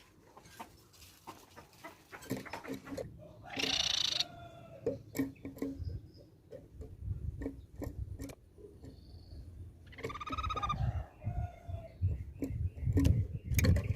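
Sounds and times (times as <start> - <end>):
bird buzzy chattering call: 2.4 - 4.3, 9.8 - 10.8.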